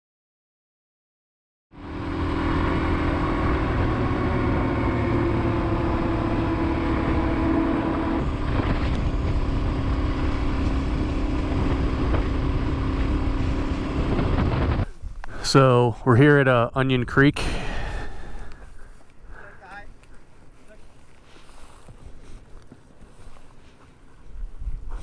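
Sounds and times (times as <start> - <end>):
motorcycle engine cruising: 1.8 - 15.6
wind rumbling on microphone: 1.8 - 16.1, 17.0 - 25.0.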